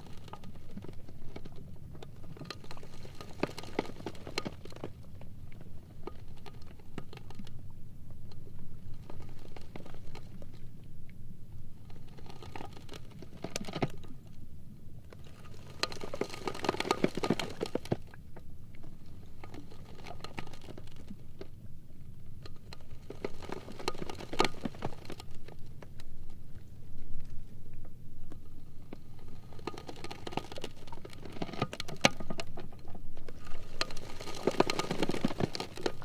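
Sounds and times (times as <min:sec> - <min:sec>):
low steady rumble: 0:00.0 - 0:36.0
ice floes crackling and squeaking: 0:33.3 - 0:36.0.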